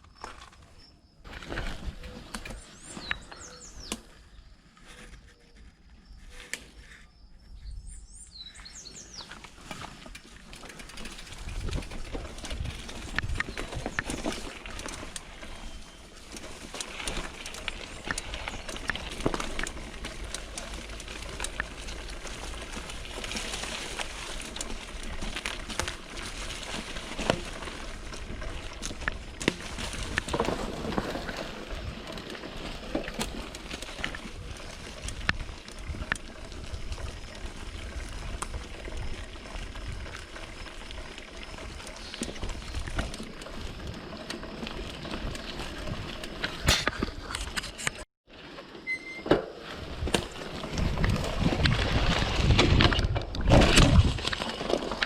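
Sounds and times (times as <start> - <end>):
bike tyres on dirt: 0.0 - 55.0
bike clattering over bumps: 9.1 - 40.3, 41.6 - 47.8
wind rumble on microphone: 11.2 - 14.5, 49.8 - 54.4.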